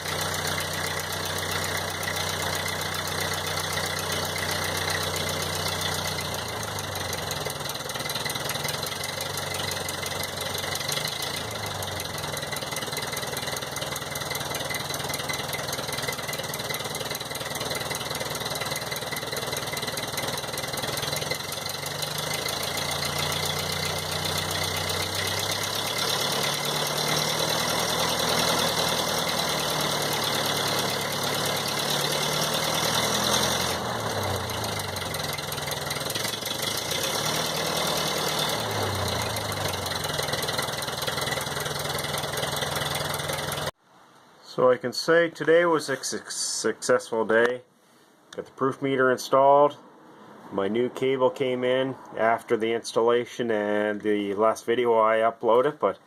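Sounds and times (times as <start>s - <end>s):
tractor engine fast idle: 0.0s - 43.8s.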